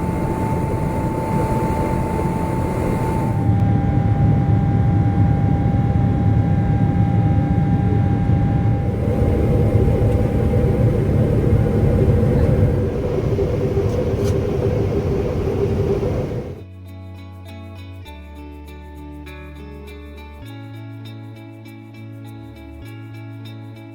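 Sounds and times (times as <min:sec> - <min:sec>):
airplane cabin engine rumble: 0:00.0 - 0:16.6
thin steady whine: 0:00.0 - 0:16.6.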